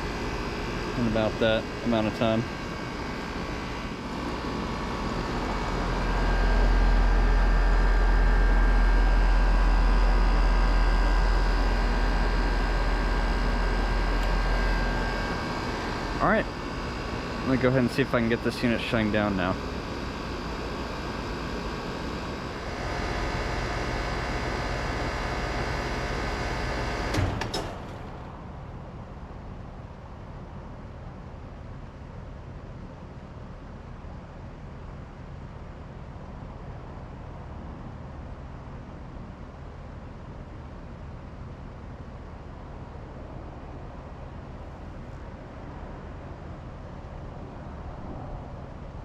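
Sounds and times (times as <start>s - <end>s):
air conditioner whirring: 0.0s - 49.0s.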